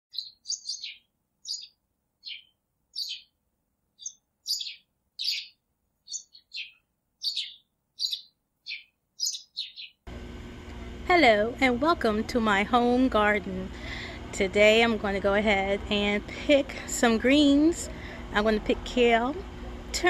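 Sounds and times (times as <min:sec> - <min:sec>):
songbird chirping: 0:00.1 - 0:03.4, 0:04.0 - 0:10.0.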